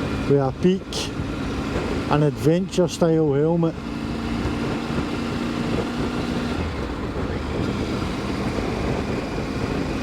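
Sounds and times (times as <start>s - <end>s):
motorcycle engine cruising: 0.0s - 10.0s
road noise: 0.0s - 10.0s
wind rushing: 3.8s - 10.0s.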